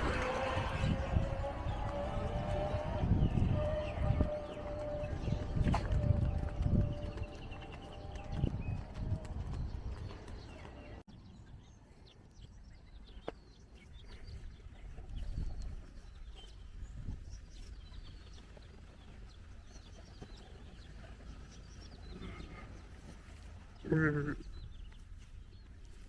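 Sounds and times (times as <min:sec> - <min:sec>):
low outdoor rumble: 0:00.0 - 0:13.0
birds chirping: 0:00.0 - 0:26.0.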